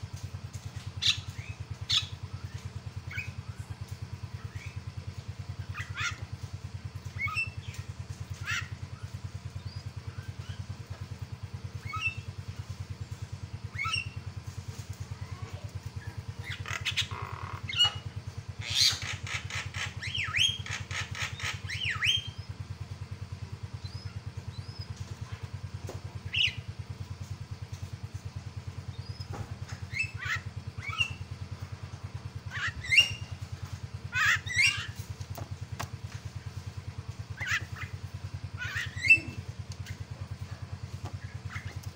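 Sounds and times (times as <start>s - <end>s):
bird squawks and whistled calls: 1.0s - 2.2s, 5.7s - 6.2s, 7.2s - 7.8s, 8.4s - 8.8s, 11.8s - 12.3s, 13.7s - 14.2s, 16.4s - 22.4s, 26.3s - 26.6s, 29.9s - 31.3s, 32.5s - 33.4s, 34.1s - 35.0s, 37.4s - 38.0s, 38.6s - 40.0s, 41.2s - 41.8s.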